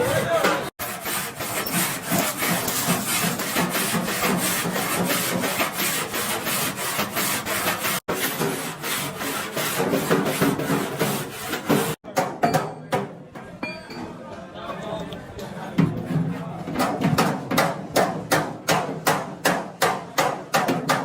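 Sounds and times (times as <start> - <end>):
abrasive tool rasping on metal: 0.0 - 12.0.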